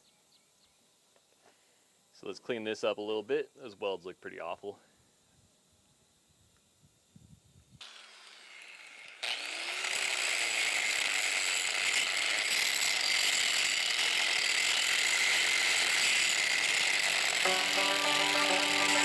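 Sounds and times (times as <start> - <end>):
angle grinder grinding metal: 8.4 - 19.0.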